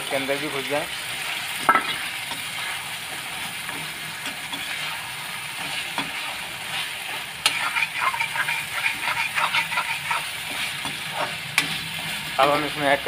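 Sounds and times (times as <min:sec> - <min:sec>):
food sizzling in a pan: 0:00.0 - 0:13.0
spoon scraping and clinking on pan: 0:07.4 - 0:11.8.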